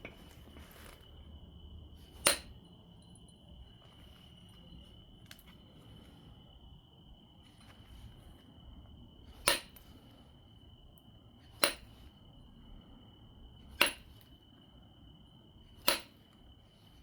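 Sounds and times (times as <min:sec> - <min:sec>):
stone strikes clicking: 0:02.1 - 0:02.6, 0:09.3 - 0:09.9, 0:11.6 - 0:12.0, 0:13.7 - 0:14.2, 0:15.8 - 0:16.2.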